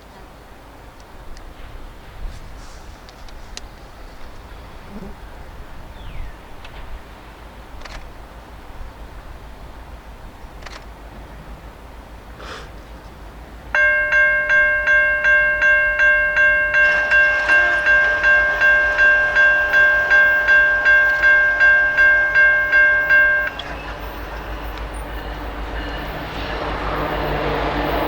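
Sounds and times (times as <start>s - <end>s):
freight train approaching: 0.1s - 28.0s
crossing warning bell ringing: 13.8s - 28.0s.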